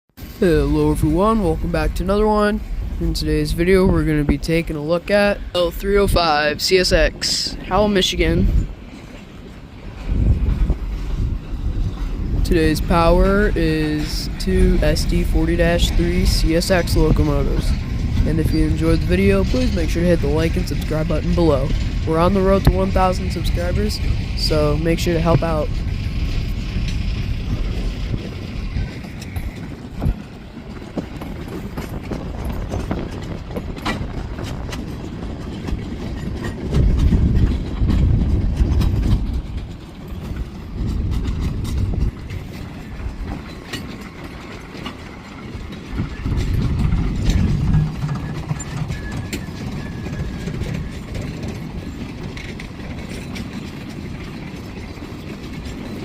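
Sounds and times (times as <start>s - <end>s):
freight train rumbling: 0.1s - 56.0s
train wheels clicking and clanking: 0.2s - 56.0s.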